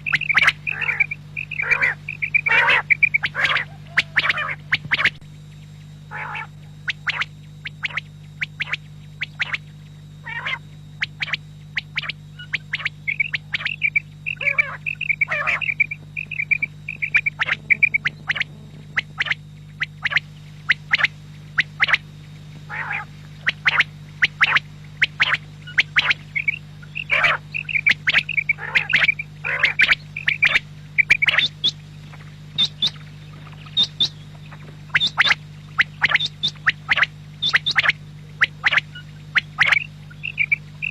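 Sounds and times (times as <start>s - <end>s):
fast chattering trills: 0.0s - 5.2s, 10.2s - 22.0s, 32.6s - 33.0s, 34.9s - 38.8s
quail calling: 0.0s - 5.2s, 6.1s - 9.6s, 10.2s - 22.0s, 22.6s - 40.9s
steady low hum: 0.0s - 40.9s.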